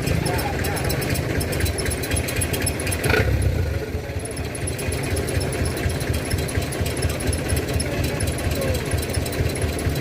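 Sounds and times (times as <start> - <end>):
truck diesel engine running: 0.0 - 10.0.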